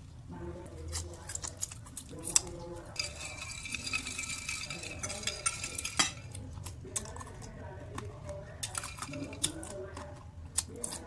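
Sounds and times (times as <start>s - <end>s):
donuts being bitten and chewed: 0.0s - 3.0s, 6.3s - 11.0s.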